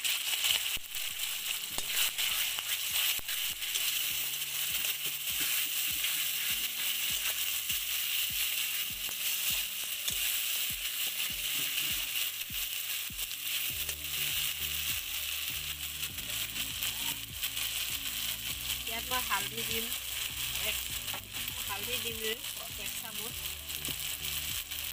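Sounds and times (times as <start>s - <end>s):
spice paste sizzling in oil: 0.0s - 24.9s
spoon scraping metal pan: 1.7s - 7.5s.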